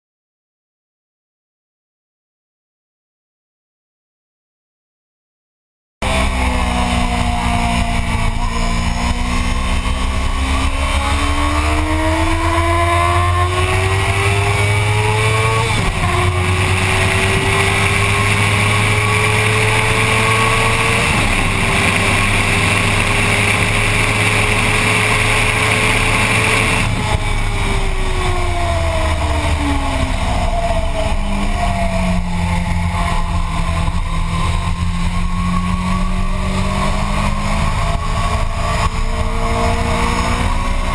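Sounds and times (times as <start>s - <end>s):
motorcycle engine accelerating: 6.0s - 40.9s.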